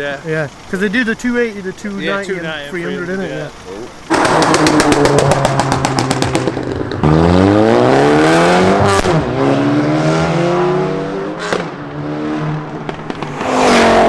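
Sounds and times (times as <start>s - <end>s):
car engine accelerating: 0.0s - 14.0s
loud rush of noise: 13.0s - 14.0s.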